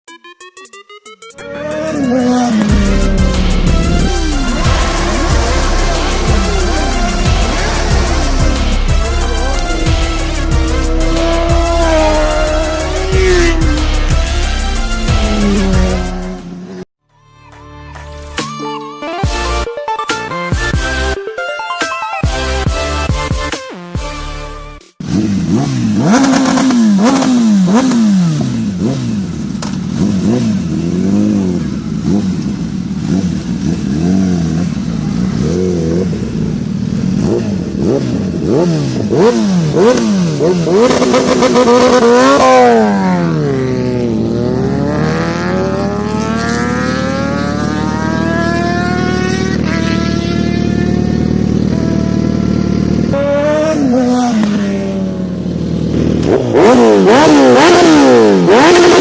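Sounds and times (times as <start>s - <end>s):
motorcycle engine revving: 1.4s - 16.9s, 25.0s - 59.0s.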